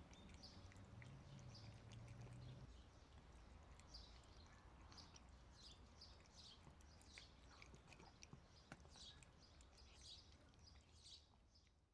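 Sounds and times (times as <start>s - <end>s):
small birds chirping: 0.0s - 7.8s.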